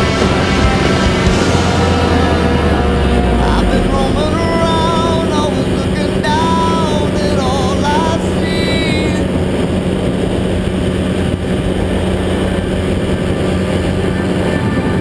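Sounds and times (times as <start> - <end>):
melodic music or singing: 0.0 - 9.4
paramotor engine drone: 0.0 - 15.0
wind rushing noise: 0.0 - 15.0.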